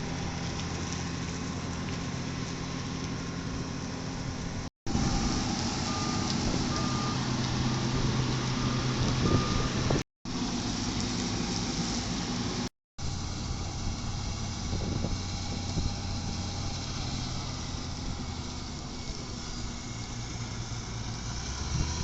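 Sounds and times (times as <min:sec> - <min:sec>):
diesel engine running under load: 0:00.0 - 0:22.0
drum grinding asphalt: 0:00.0 - 0:22.0
reversing beeper: 0:04.9 - 0:07.4, 0:08.0 - 0:10.0.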